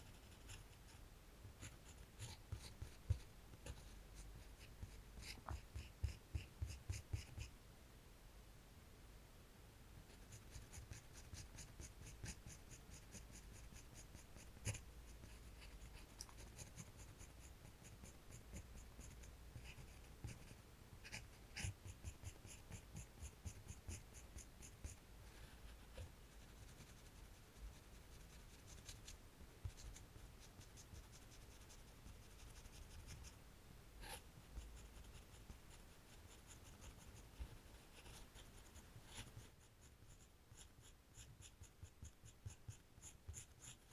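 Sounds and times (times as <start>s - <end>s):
pencil scratching on paper: 0.0s - 1.0s, 1.6s - 7.5s, 10.1s - 33.4s, 34.0s - 43.9s.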